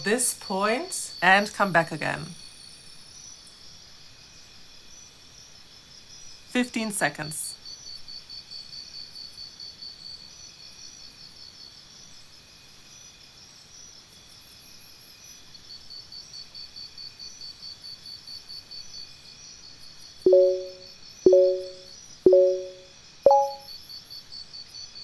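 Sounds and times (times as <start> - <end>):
short electronic beep: 20.3 - 23.6.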